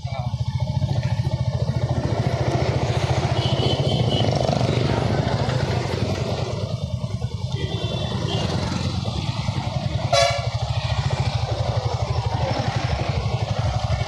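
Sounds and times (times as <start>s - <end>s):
motorcycle engine running: 0.0s - 14.0s
vehicle horn toot: 3.1s - 4.4s, 7.5s - 8.9s, 10.0s - 10.7s.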